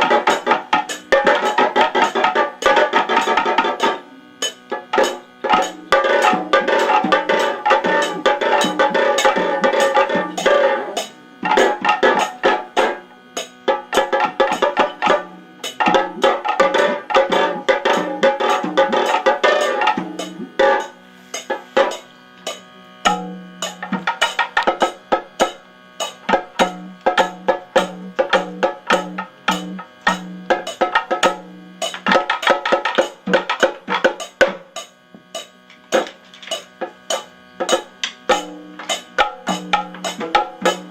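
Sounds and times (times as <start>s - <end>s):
ringing wavering tones: 0.0s - 32.0s
fast drum strokes: 0.0s - 40.9s.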